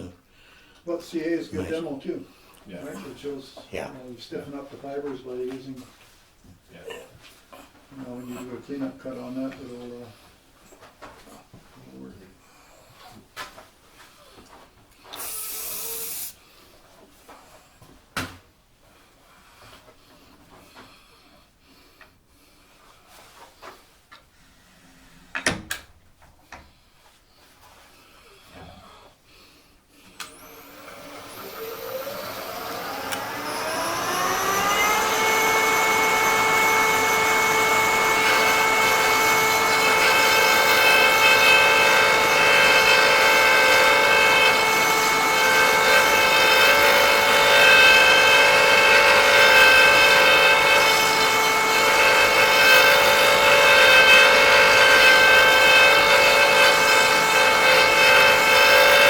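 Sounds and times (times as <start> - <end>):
power tool motor whine: 15.1 - 16.4, 30.3 - 59.0.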